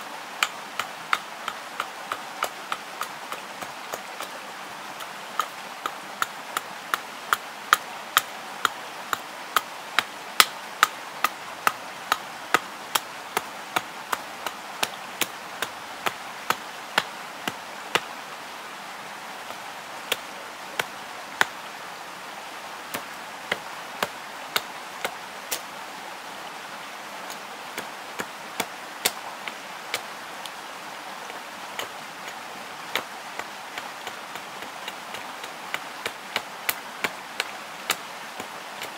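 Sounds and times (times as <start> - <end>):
steady hiss: 0.0 - 38.9
knife chopping on wood: 0.4 - 3.1, 10.4 - 10.9.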